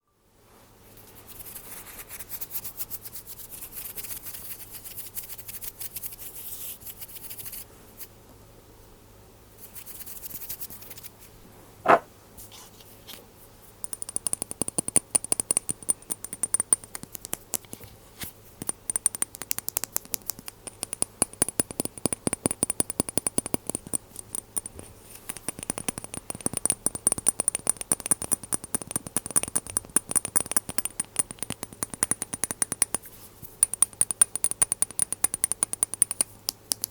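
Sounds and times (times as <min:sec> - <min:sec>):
tapping and clicking on glass: 0:18.6 - 0:33.0, 0:33.6 - 0:36.9.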